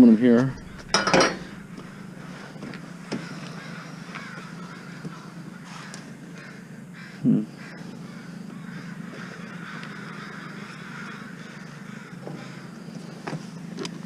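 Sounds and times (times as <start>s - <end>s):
low steady hum: 0.0s - 4.1s
crows cawing: 0.5s - 13.2s.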